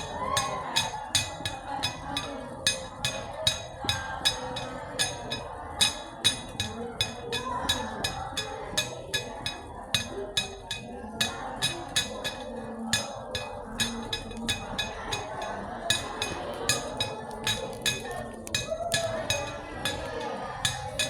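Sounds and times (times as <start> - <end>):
background murmur: 0.0 - 21.0.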